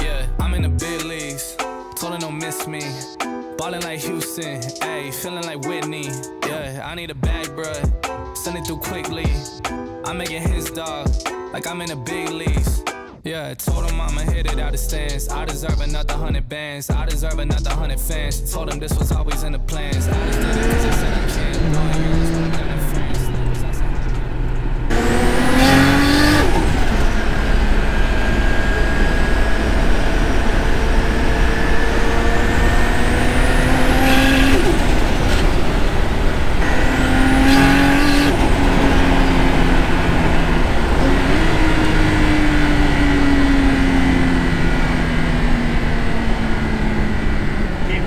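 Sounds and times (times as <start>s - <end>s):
car engine in cabin: 18.8s - 48.0s.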